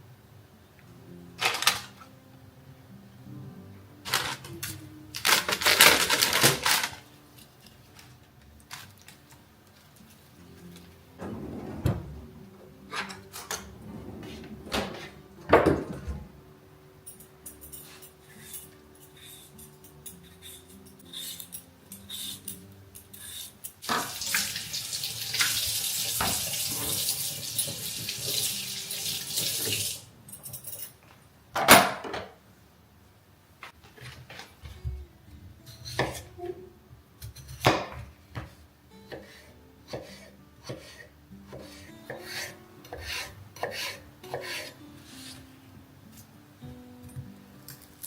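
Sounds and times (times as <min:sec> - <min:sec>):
dishes and utensils clinking: 0:12.9 - 0:16.2, 0:17.0 - 0:32.4
kitchen tap running: 0:23.8 - 0:30.1.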